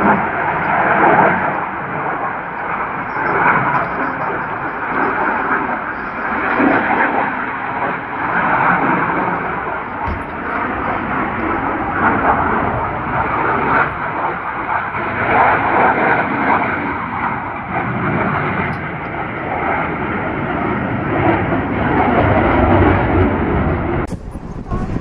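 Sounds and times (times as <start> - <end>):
airplane engine rushing: 0.0 - 25.0.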